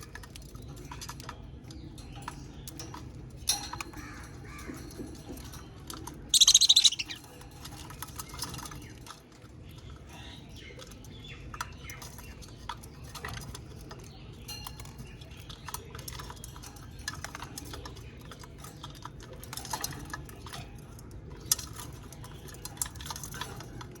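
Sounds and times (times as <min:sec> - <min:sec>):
budgies chirping and chattering: 0:06.1 - 0:16.8
shrill bird call: 0:06.4 - 0:07.2.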